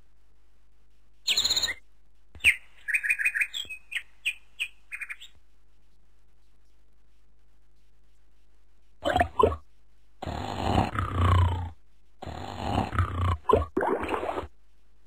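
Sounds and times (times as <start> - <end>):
bird chirping: 1.2 - 1.8, 2.4 - 5.4.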